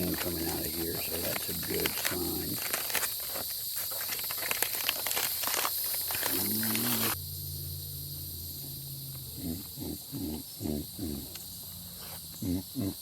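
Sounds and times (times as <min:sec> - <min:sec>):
campfire wood crackling and popping: 0:00.0 - 0:07.2
insects chirping: 0:00.0 - 0:13.0.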